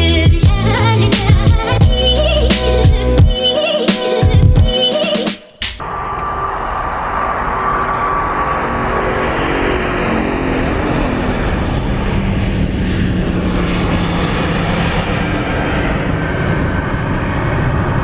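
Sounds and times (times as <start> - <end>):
jet airliner passing: 5.8 - 18.0.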